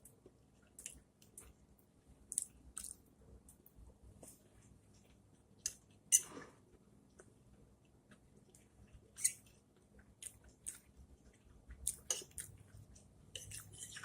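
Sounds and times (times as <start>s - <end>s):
person chewing food: 2.3s - 3.0s, 4.2s - 14.0s.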